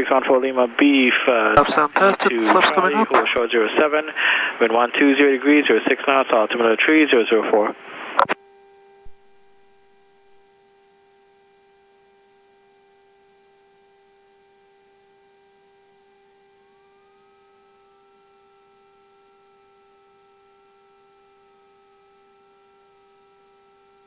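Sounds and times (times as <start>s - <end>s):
electrical hum with whining tones: 0.0s - 24.0s.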